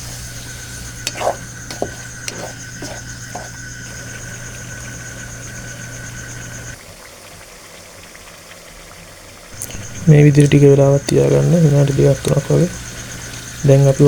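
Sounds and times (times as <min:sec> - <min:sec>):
spoon scraping and knocking pot: 0:00.0 - 0:04.8
low hum: 0:00.0 - 0:06.8
thin steady high tone: 0:00.0 - 0:06.8, 0:09.6 - 0:14.0.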